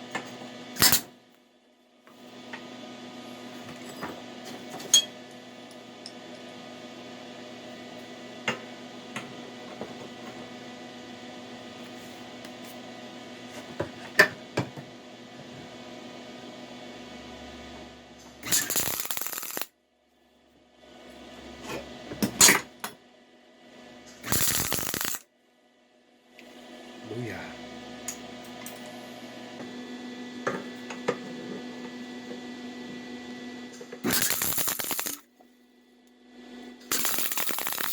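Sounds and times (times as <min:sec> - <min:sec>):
steady hum: 0:18.3 - 0:19.7, 0:24.2 - 0:25.3, 0:34.0 - 0:35.2, 0:36.9 - 0:37.9
welding arc crackle: 0:18.4 - 0:19.7, 0:24.2 - 0:25.2, 0:34.0 - 0:35.3, 0:36.9 - 0:37.9.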